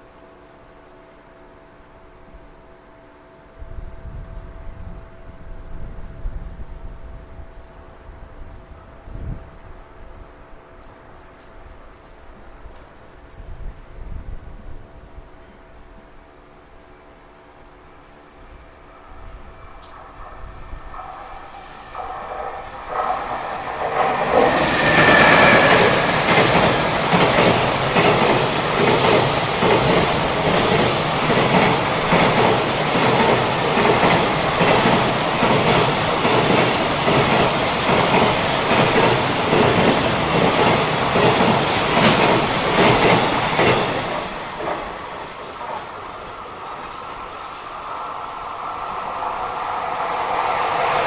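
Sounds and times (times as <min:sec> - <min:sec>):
train wagons rumbling past: 0:18.6 - 0:51.0.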